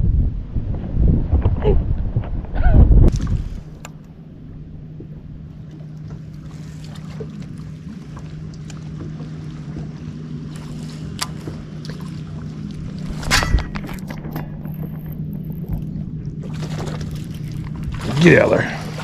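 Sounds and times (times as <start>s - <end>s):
boat motor humming: 2.5s - 19.0s.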